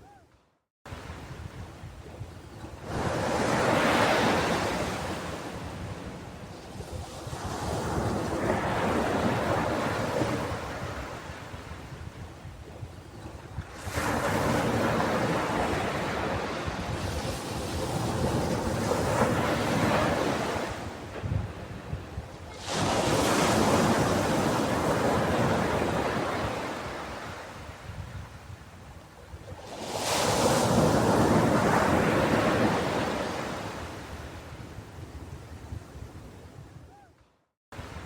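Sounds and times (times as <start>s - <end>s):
ocean waves breaking: 2.6s - 11.8s, 13.6s - 27.8s, 29.6s - 34.5s.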